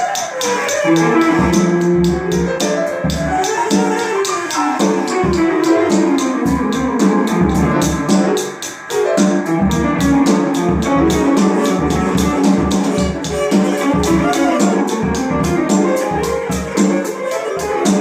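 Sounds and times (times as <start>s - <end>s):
steady drum beat: 0.0s - 18.0s
instrumental guitar music: 0.8s - 18.0s.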